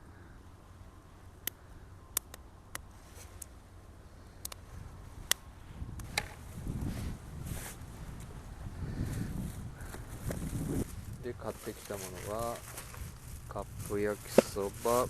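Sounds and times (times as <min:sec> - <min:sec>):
low rumbling noise: 0:03.6 - 0:15.0.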